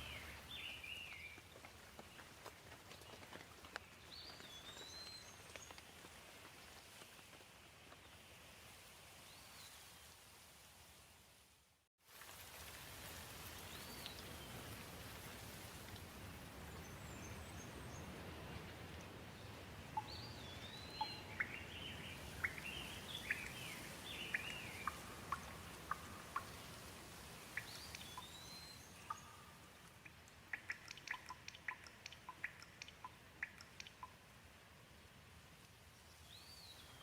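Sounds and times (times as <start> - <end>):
gentle rain falling: 0.0 - 37.0
water drops dripping: 19.9 - 34.3.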